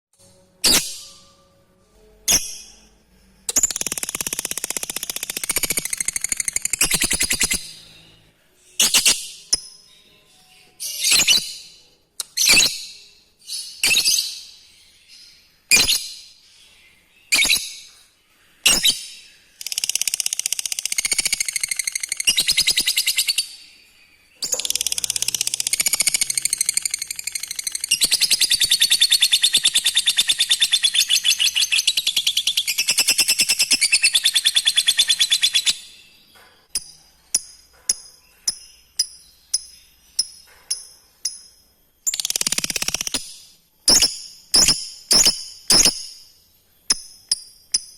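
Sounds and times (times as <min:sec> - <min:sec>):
lovebird chirps: 0:00.6 - 0:01.4, 0:02.0 - 0:47.9
lovebird rattling chatter: 0:03.5 - 0:07.6, 0:24.4 - 0:28.9, 0:42.1 - 0:43.3.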